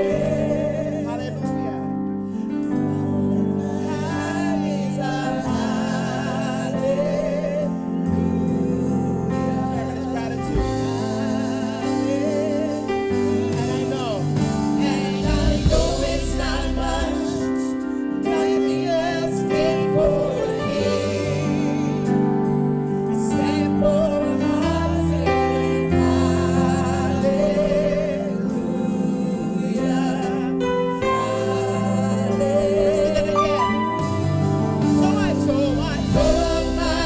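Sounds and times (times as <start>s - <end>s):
choir singing gospel music: 0.0s - 37.0s
held chords: 0.0s - 37.0s
bass line: 9.4s - 17.7s, 31.6s - 37.0s.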